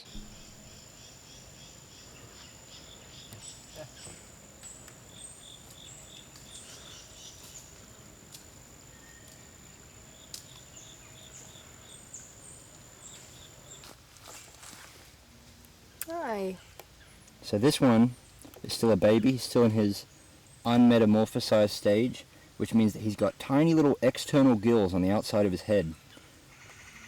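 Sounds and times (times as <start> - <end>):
insects quick repeated chirps: 0.0 - 13.8
insect high-pitched trill: 0.0 - 13.9.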